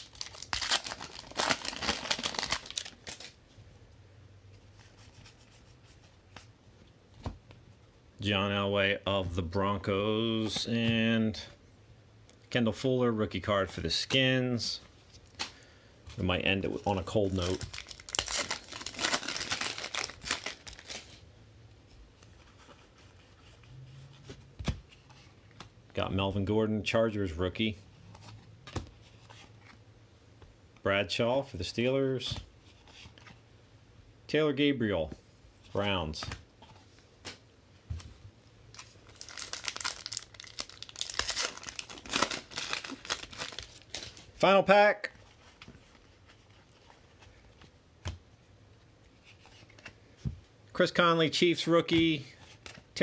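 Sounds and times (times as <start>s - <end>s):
plastic wrapper crinkling and tearing: 0.0s - 3.4s, 17.2s - 21.2s, 38.7s - 44.3s.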